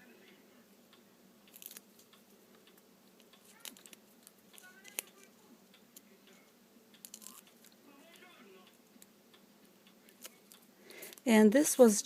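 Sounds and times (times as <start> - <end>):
paper pieces clicking and tapping: 3.4 - 5.2.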